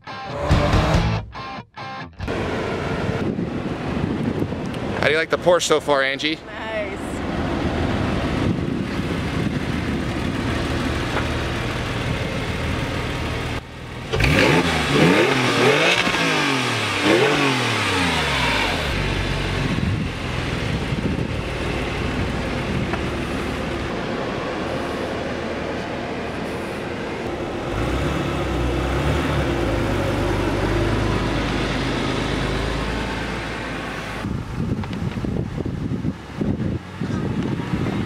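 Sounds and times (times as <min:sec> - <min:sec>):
car engine running: 0:06.8 - 0:38.0
car engine revving: 0:07.2 - 0:34.4.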